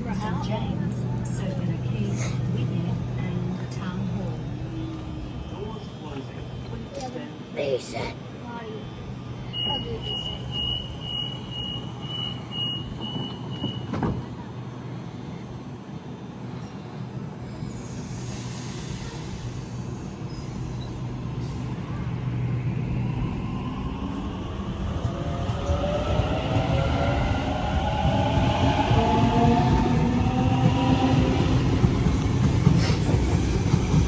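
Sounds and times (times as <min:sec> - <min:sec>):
train rumble: 0:00.0 - 0:34.0
train doors shutting knock: 0:12.1 - 0:14.3.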